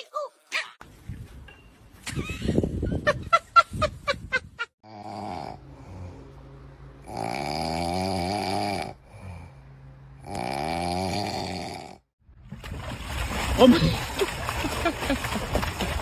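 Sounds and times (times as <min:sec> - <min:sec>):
dog snoring: 0:04.8 - 0:06.3, 0:07.0 - 0:09.6, 0:10.2 - 0:12.1.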